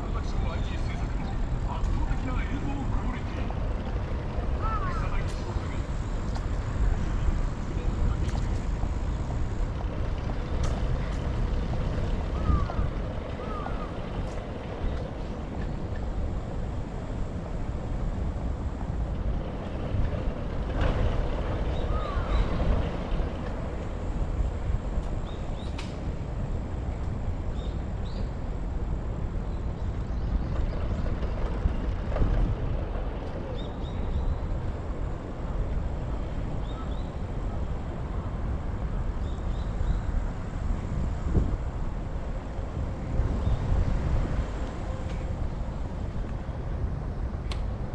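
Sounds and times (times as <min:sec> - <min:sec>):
road and traffic noise: 0:00.0 - 0:47.9
wind buffeting microphone: 0:00.0 - 0:47.9.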